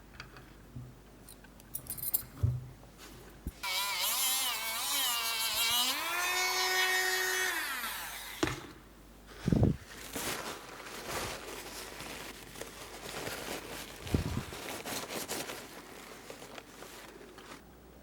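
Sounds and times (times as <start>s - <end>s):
electric power drill whining: 3.6s - 8.6s.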